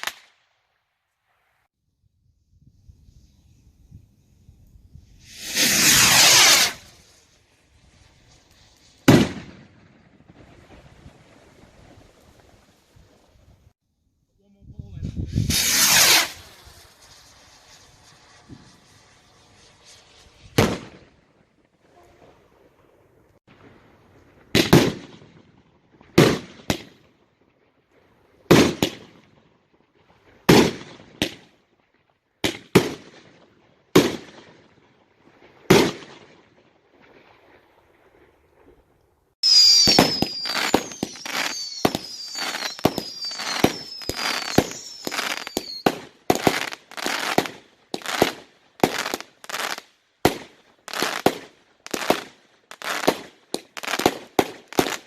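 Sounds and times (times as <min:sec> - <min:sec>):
falling firework whistles: 0:02.6 - 0:13.2, 0:15.1 - 0:21.3, 0:39.4 - 0:55.0
fireworks bangs: 0:05.1 - 0:13.3, 0:15.0 - 0:22.6, 0:23.5 - 0:27.0, 0:28.4 - 0:31.5, 0:32.4 - 0:34.8, 0:35.4 - 0:38.8, 0:39.4 - 0:55.0.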